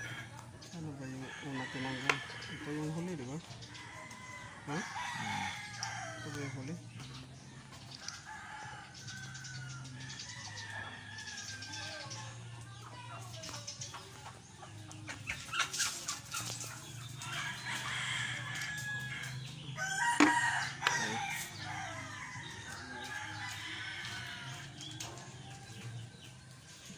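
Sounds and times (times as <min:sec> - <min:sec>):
chickens clucking: 0:00.0 - 0:26.9
rooster crowing: 0:04.0 - 0:06.4, 0:17.3 - 0:24.7.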